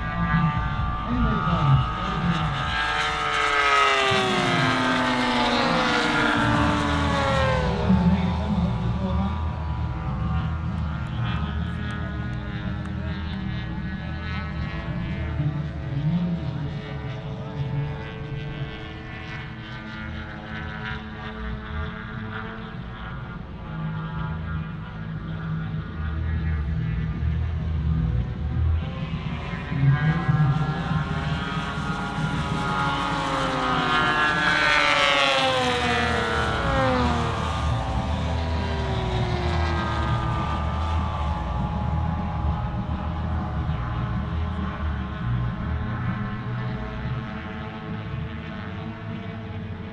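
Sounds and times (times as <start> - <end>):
model plane engine drone: 0.0 - 49.9.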